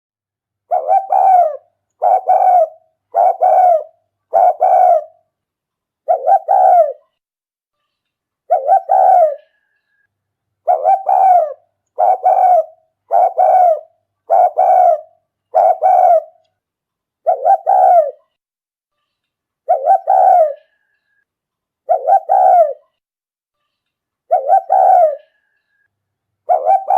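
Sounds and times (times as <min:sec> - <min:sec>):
dove cooing: 0:00.7 - 0:05.2, 0:06.0 - 0:07.0, 0:08.5 - 0:09.6, 0:10.6 - 0:16.4, 0:17.2 - 0:18.2, 0:19.7 - 0:20.8, 0:21.9 - 0:22.8, 0:24.3 - 0:25.4, 0:26.5 - 0:26.9.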